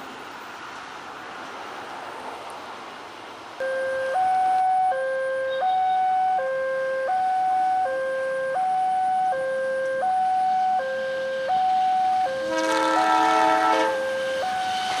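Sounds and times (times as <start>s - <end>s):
level crossing two-tone alarm: 3.6s - 15.0s.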